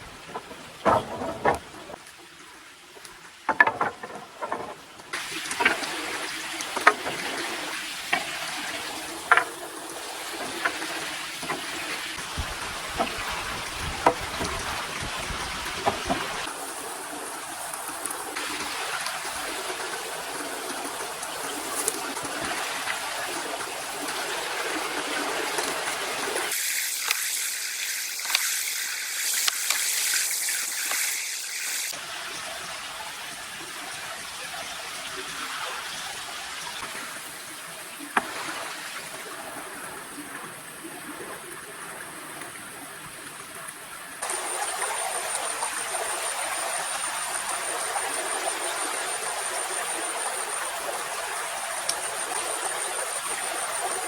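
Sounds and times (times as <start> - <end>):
water running and trickling: 0.0 - 54.0
sharp knocks and clicks: 0.1 - 2.0, 3.5 - 5.8, 9.3 - 9.6.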